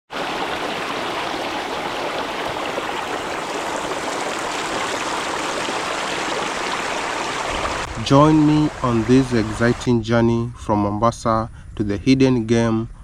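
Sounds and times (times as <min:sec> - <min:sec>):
flowing water rushing: 0:00.1 - 0:09.9.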